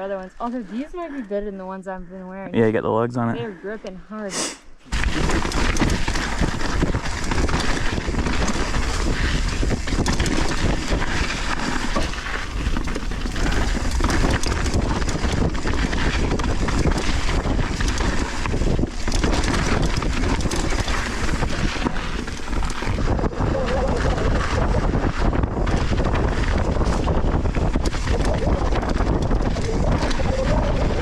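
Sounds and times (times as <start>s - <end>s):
bike tyres crunching on loose soil: 4.9s - 23.5s, 24.4s - 29.1s
wind buffeting microphone: 4.9s - 31.0s.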